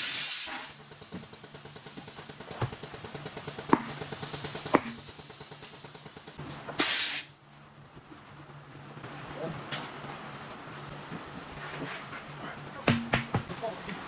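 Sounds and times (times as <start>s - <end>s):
compressed air hissing: 0.0s - 7.4s.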